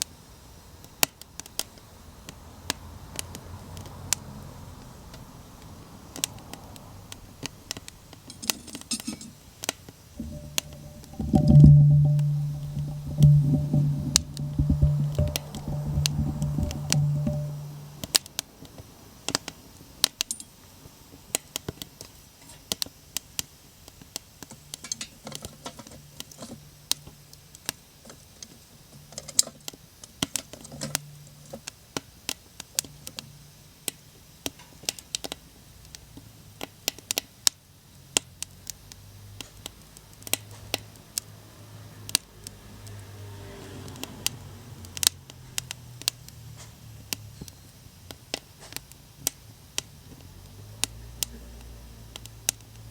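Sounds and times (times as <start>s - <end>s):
faint low hum: 10.2s - 18.1s
wood fire crackling: 10.2s - 18.2s.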